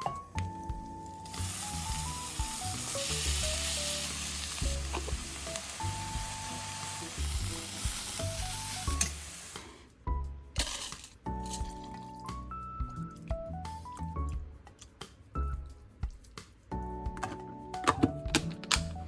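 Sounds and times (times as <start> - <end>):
light background music: 0.0 - 19.0
food sizzling in a frying pan: 1.0 - 9.7.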